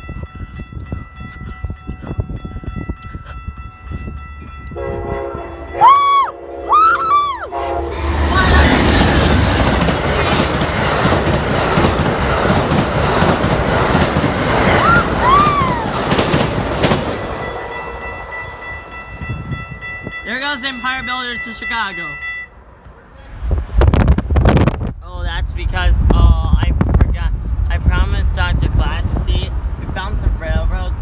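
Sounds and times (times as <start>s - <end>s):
train passing with wheel clatter: 0.0s - 31.0s
train horn chord: 4.7s - 8.9s
short high cries: 5.8s - 7.7s, 14.7s - 16.1s.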